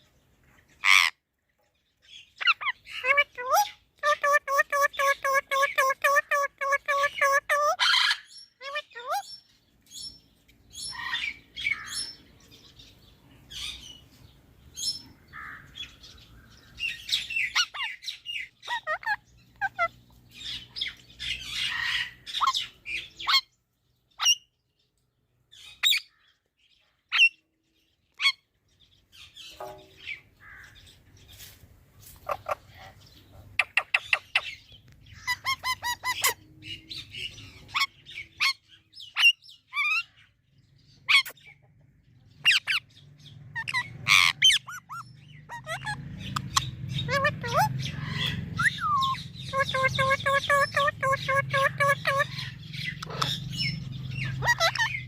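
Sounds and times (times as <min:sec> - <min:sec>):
parrot chirps and squawks: 0:00.8 - 0:01.2, 0:02.4 - 0:12.2, 0:16.8 - 0:23.5, 0:24.2 - 0:24.5, 0:25.5 - 0:26.2, 0:27.1 - 0:27.4, 0:28.1 - 0:28.5, 0:32.2 - 0:40.2, 0:41.0 - 0:41.6, 0:42.4 - 0:42.9, 0:43.5 - 0:55.0.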